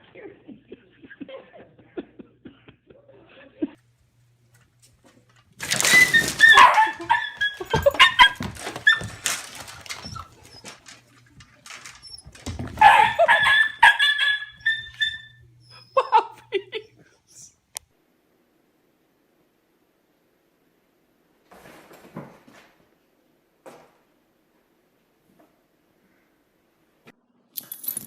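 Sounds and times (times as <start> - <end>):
scuffling and clattering: 4.5 - 15.1
dog barking and yelping: 5.9 - 11.0, 11.7 - 16.9.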